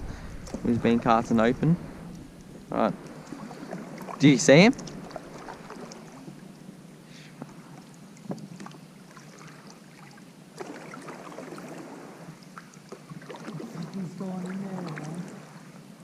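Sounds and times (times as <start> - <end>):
faint water and wind hiss: 0.0 - 16.0
light knocks on kayak: 8.2 - 8.6.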